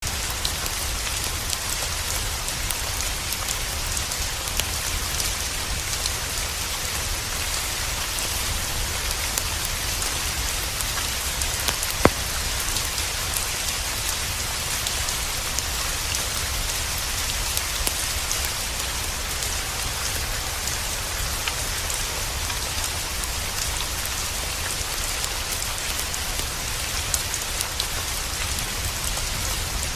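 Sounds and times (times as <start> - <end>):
steady rain falling: 0.0 - 29.9.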